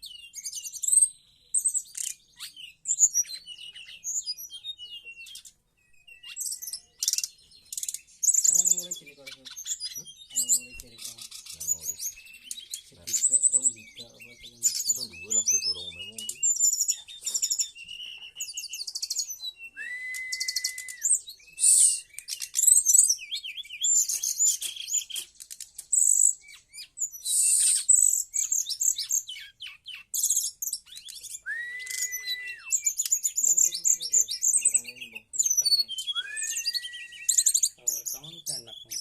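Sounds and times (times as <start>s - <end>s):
bird trilling song: 0.0s - 39.0s
bird long rising whistle: 18.9s - 22.2s, 27.1s - 28.0s, 31.3s - 33.0s, 36.0s - 37.7s.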